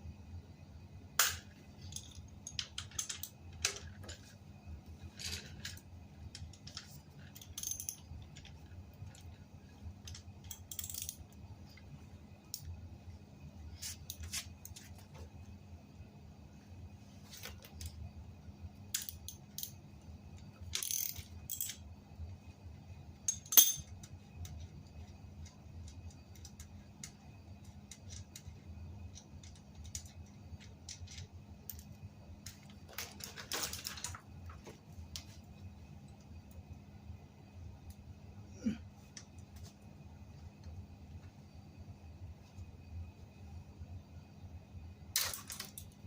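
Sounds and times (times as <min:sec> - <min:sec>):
faint low hum: 0:00.0 - 0:46.0
metal tools clinking: 0:06.4 - 0:08.5, 0:23.3 - 0:23.9.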